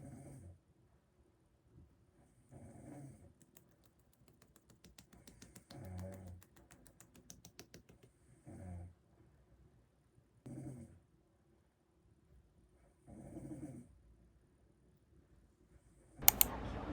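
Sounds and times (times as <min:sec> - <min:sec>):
light clicking: 0:16.2 - 0:16.5.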